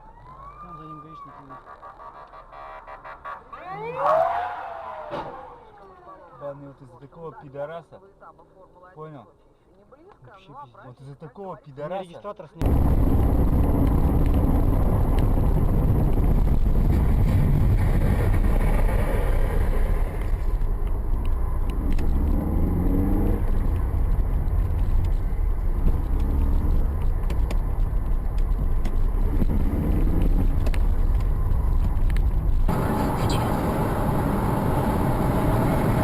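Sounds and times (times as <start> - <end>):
car driving rumble: 12.6 - 36.0.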